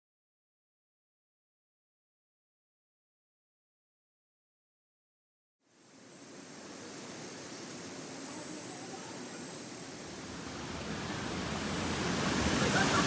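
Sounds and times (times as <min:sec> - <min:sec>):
thin high-pitched whine: 0:05.7 - 0:13.0
waterfall rushing: 0:10.2 - 0:13.0.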